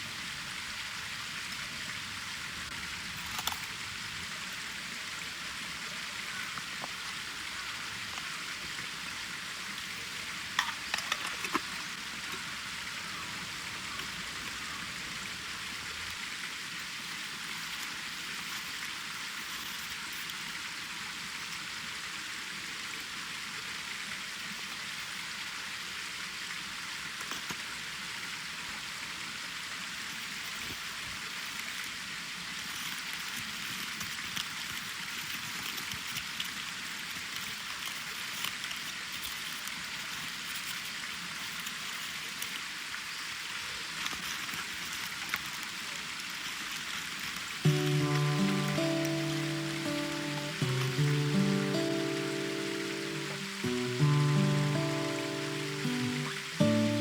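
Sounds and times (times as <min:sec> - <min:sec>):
campfire crackling and hissing: 0:30.0 - 0:57.0.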